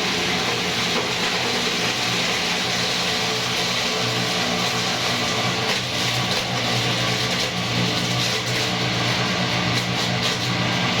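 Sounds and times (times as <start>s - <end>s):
meat grinder motor humming: 0.0s - 11.0s.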